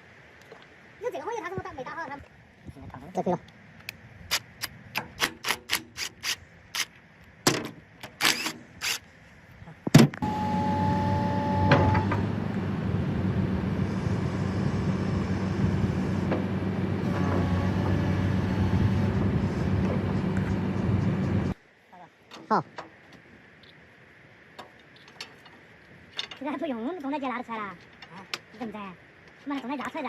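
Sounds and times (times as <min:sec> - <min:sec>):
motor humming: 0:10.2 - 0:21.6.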